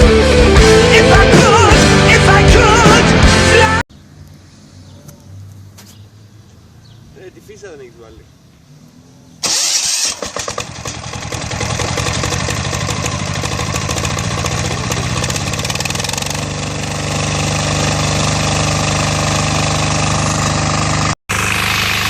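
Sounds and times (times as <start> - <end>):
diesel engine cranking and clattering: 9.4 - 22.0.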